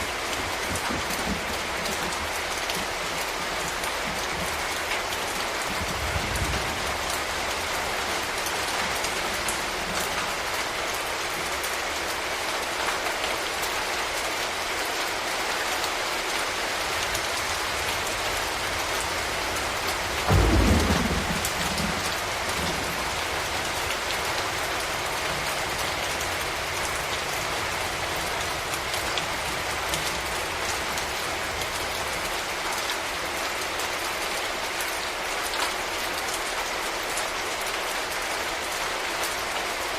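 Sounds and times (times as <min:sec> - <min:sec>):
thunder rumble: 0:00.0 - 0:10.5, 0:16.6 - 0:32.6
steady rain falling: 0:00.0 - 0:39.9.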